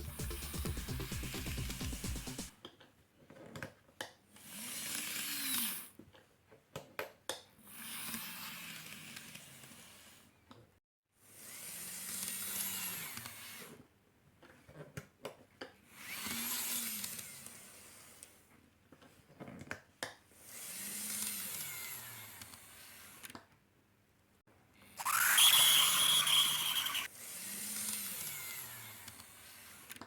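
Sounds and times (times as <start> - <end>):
model train motor whirring: 4.4 - 5.9, 7.7 - 10.2, 11.4 - 13.8, 15.9 - 18.4, 20.4 - 23.4, 25.0 - 30.0.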